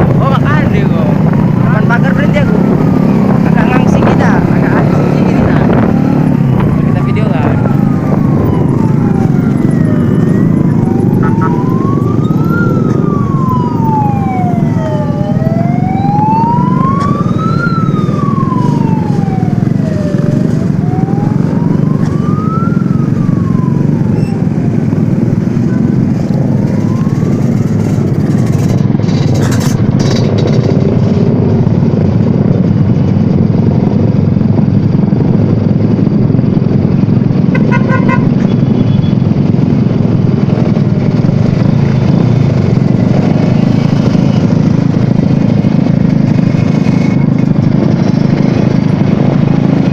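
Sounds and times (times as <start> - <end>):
sirens wailing: 0.0 - 49.9
traffic rumble: 0.0 - 49.9.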